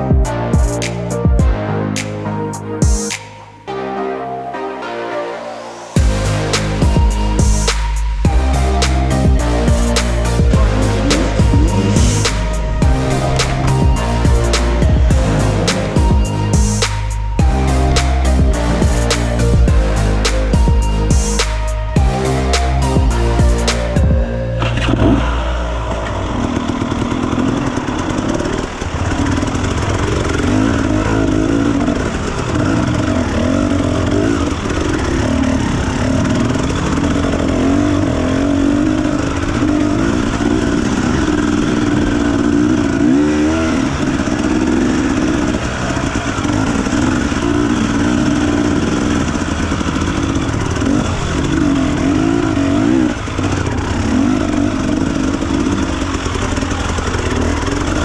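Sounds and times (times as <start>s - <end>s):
dirt bike engine revving: 26.3s - 58.0s.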